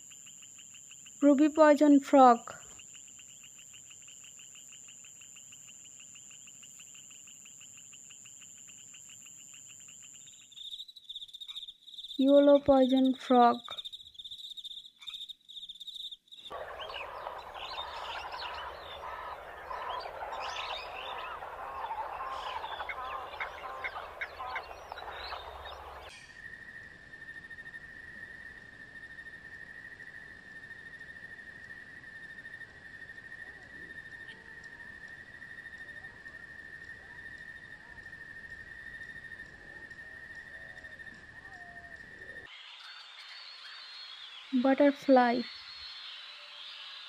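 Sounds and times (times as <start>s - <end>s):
frogs chirping and trilling: 0.0s - 47.0s.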